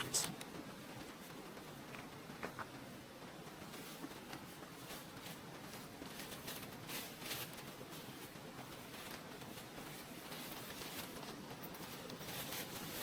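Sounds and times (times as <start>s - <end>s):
faint rustling and crunching: 0.0s - 13.0s
low steady hiss: 0.0s - 13.0s.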